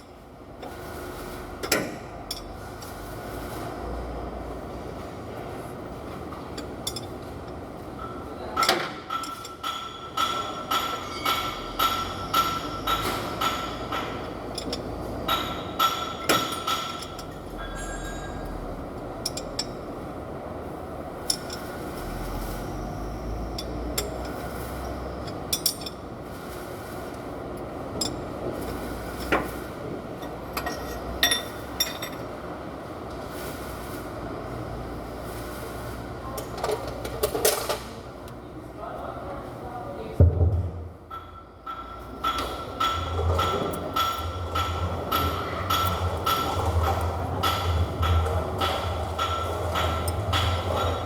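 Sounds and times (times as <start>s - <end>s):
metal tool striking metal: 8.6s - 18.4s, 41.1s - 51.0s.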